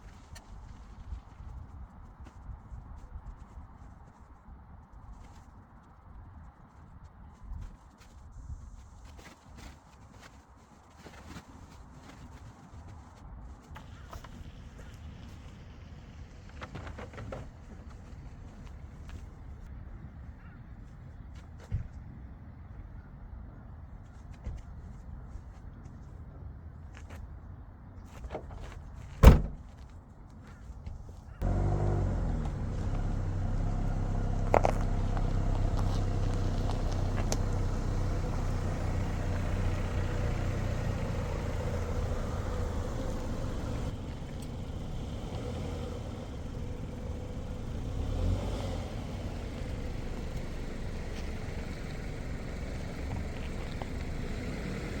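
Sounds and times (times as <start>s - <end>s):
sharp thump: 29.2s - 29.6s
car engine starting and idling: 31.4s - 55.0s.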